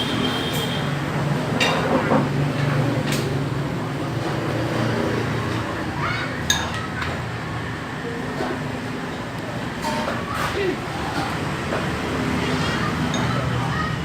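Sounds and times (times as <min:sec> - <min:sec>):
utensil clinking against dish: 0:06.5 - 0:06.9.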